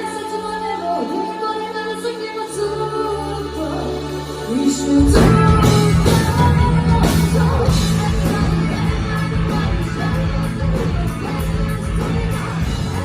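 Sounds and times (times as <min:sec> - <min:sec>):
person singing: 0:00.0 - 0:13.0
live rock band playing: 0:04.1 - 0:13.0.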